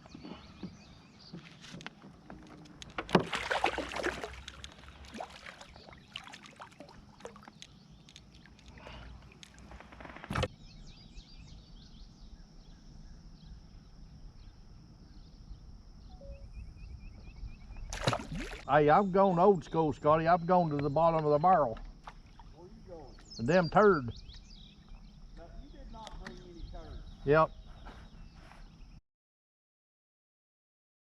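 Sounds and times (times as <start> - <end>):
water splashing around kayak: 2.8 - 9.2, 17.9 - 18.7
high chirps: 16.1 - 17.2.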